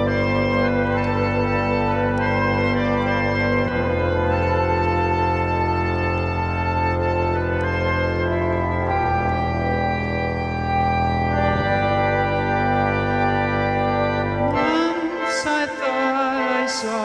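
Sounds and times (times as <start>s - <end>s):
organ playing held chords: 0.0s - 17.0s
person singing: 14.5s - 17.0s.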